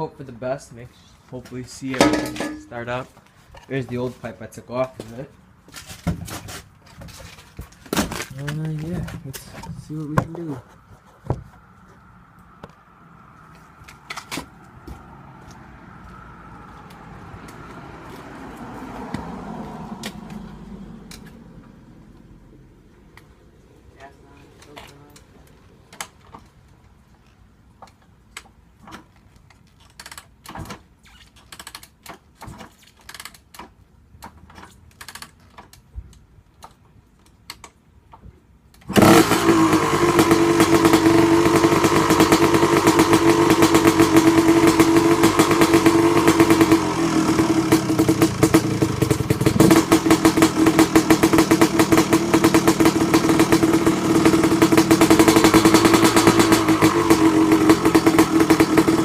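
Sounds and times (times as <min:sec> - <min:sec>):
engine being kicked over: 0:02.0 - 0:02.8, 0:38.9 - 0:59.0
two-stroke engine running: 0:38.9 - 0:59.0.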